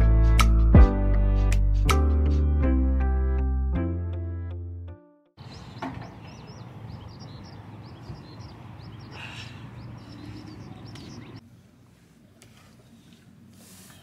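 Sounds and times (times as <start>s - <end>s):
small birds chirping: 5.4s - 11.4s.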